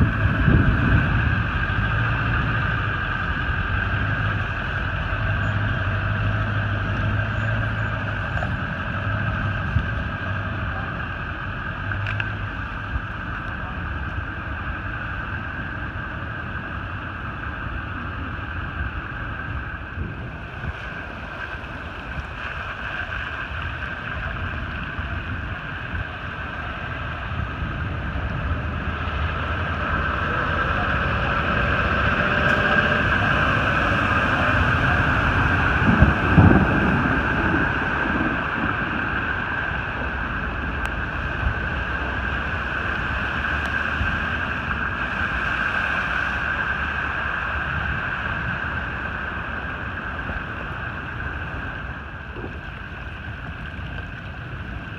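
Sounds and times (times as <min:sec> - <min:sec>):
floodwater rushing: 0:00.0 - 0:54.9
wind buffeting microphone: 0:00.0 - 0:54.9.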